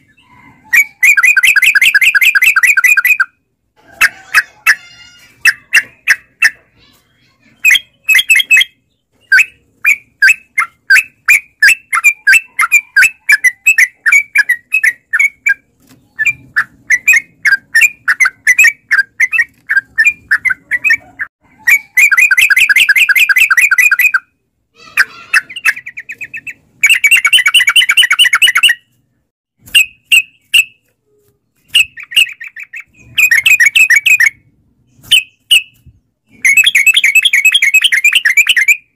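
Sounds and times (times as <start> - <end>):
bird rolling trills: 0.0 - 6.6.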